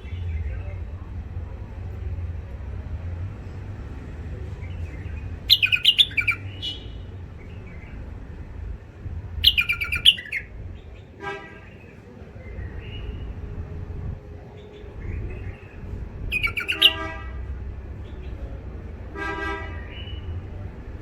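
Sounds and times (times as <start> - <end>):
steady low rumble: 0.0 - 11.2, 12.4 - 19.1
birds chirping song: 4.3 - 8.4, 9.4 - 13.4, 14.4 - 17.2, 19.8 - 20.4.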